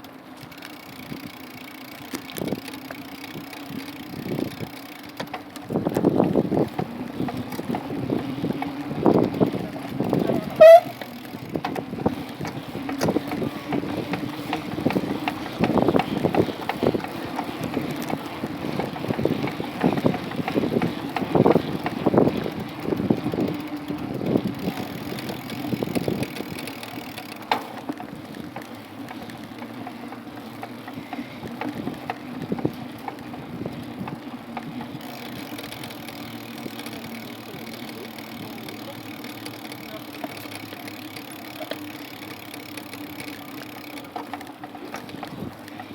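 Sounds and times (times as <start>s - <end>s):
bike rattling and knocking: 0.0s - 45.9s
bike wheels rolling: 0.0s - 45.9s.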